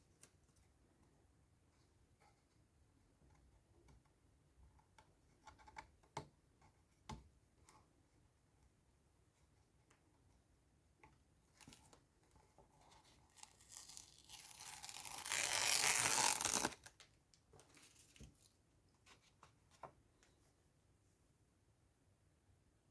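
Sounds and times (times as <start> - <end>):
long tearing sound: 13.3 - 16.9.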